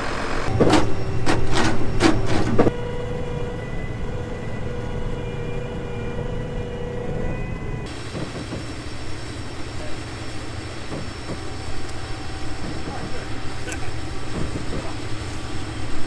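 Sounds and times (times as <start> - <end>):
farm vehicle engine hum: 0.0 - 16.0
loud knocks and rattles: 0.2 - 2.7, 7.9 - 9.0, 10.8 - 11.5, 14.3 - 15.2.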